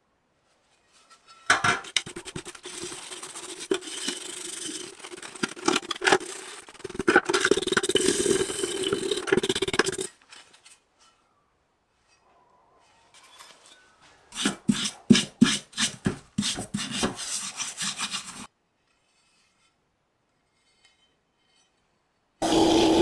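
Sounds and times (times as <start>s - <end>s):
tool scraping a workpiece: 1.0s - 10.6s, 13.2s - 18.5s, 22.4s - 23.0s.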